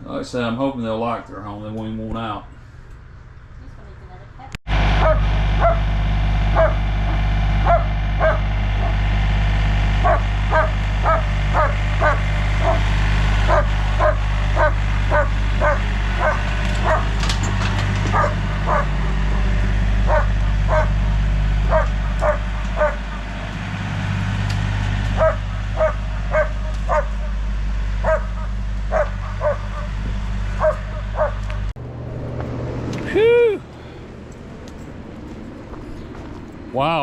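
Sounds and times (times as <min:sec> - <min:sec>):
steady low hum: 0:02.3 - 0:37.0
dog barking: 0:05.0 - 0:05.8, 0:06.5 - 0:06.8, 0:07.6 - 0:08.4, 0:10.0 - 0:12.8, 0:13.5 - 0:17.2, 0:18.1 - 0:18.9, 0:20.1 - 0:21.0, 0:21.7 - 0:23.1, 0:25.2 - 0:27.3, 0:28.0 - 0:29.9, 0:30.6 - 0:31.6.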